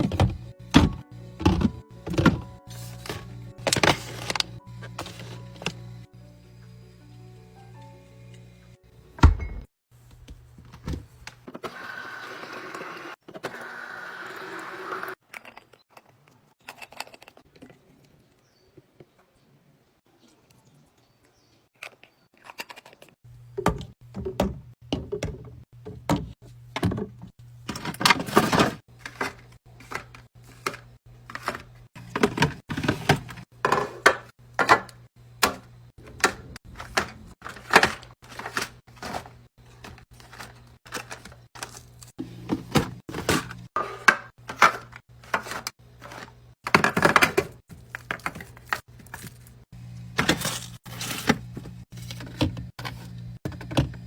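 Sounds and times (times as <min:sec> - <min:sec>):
items clattering in a mini fridge: 0:00.0 - 0:06.1, 0:09.2 - 0:11.9, 0:21.8 - 0:54.0.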